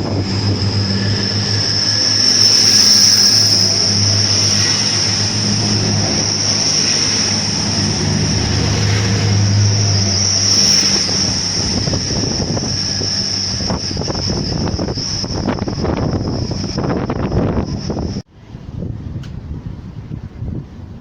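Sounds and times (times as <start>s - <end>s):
train passing: 0.0s - 18.7s
wind buffeting microphone: 0.0s - 21.0s.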